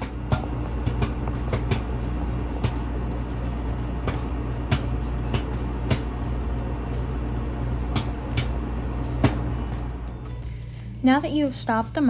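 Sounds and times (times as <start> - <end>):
popcorn popping: 0.0 - 10.6
microwave oven humming: 0.0 - 12.0.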